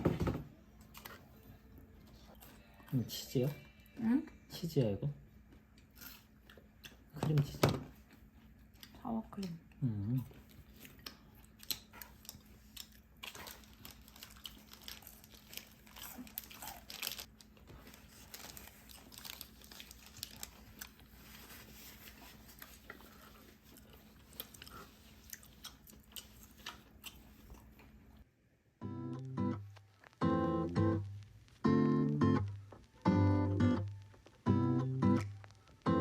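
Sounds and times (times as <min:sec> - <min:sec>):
person chewing crunchy food: 0:05.4 - 0:07.1, 0:10.2 - 0:28.0.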